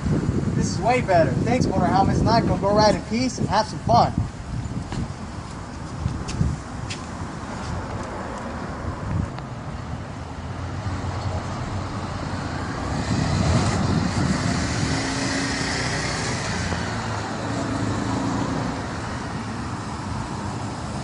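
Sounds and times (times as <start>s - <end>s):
motorcycle engine riding: 12.5s - 18.0s.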